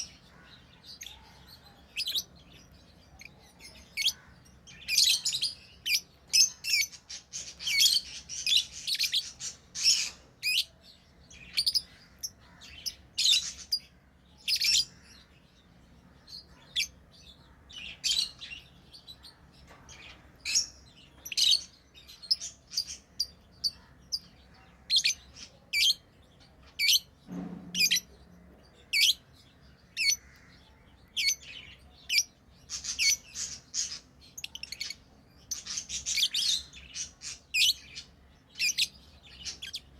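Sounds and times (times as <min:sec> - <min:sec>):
lovebirds chirping: 0:00.0 - 0:39.9
low thud: 0:27.3 - 0:28.3.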